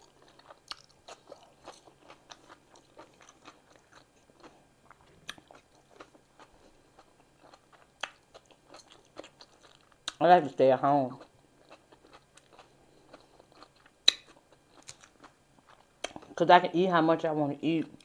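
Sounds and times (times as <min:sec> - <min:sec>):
person chewing with mouth clicks: 0:00.0 - 0:10.2, 0:11.2 - 0:16.4.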